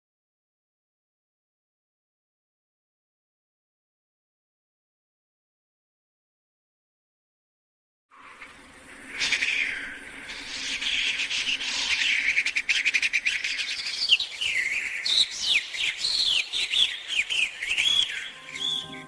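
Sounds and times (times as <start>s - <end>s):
small birds chirping: 9.0s - 19.0s.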